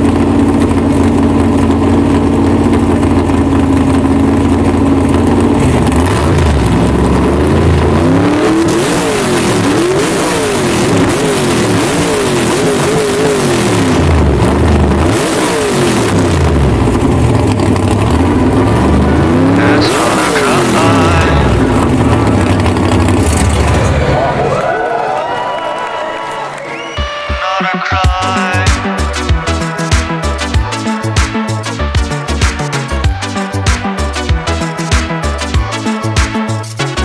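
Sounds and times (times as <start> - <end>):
car engine idling and revving: 0.0 - 24.9, 28.0 - 37.0.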